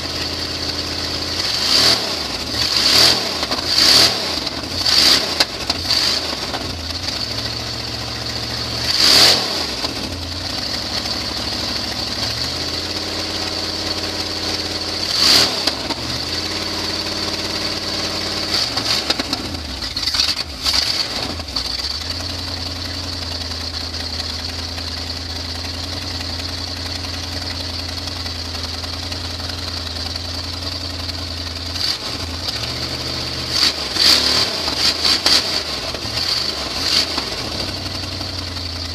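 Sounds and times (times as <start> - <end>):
pickup truck engine revving: 0.0 - 11.4, 12.1 - 22.5, 31.6 - 38.9.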